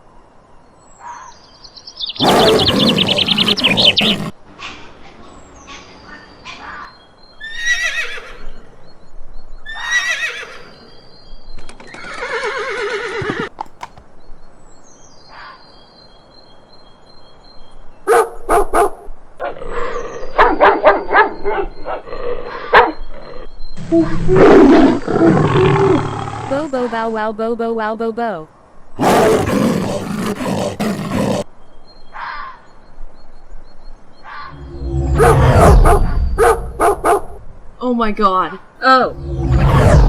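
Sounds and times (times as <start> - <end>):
faint high bird chirps: 1.0 - 4.3
horse whinnying: 7.4 - 8.5, 9.7 - 10.7, 11.8 - 13.6
dog barking: 18.1 - 19.1, 20.4 - 21.7, 22.7 - 22.9, 35.2 - 37.4.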